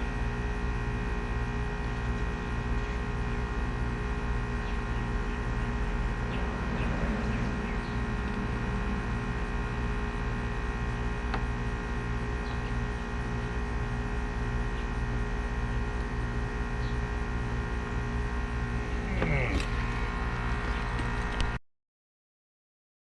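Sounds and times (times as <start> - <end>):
electrical hum: 0.0 - 21.6.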